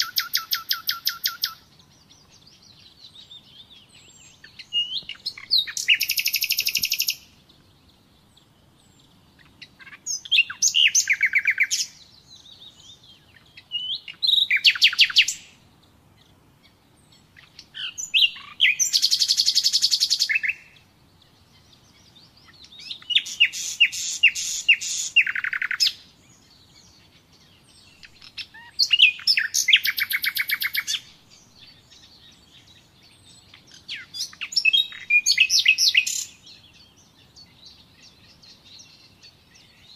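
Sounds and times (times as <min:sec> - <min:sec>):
nightingale singing trills: 0:00.0 - 0:39.9
short bird whistles: 0:04.8 - 0:07.2.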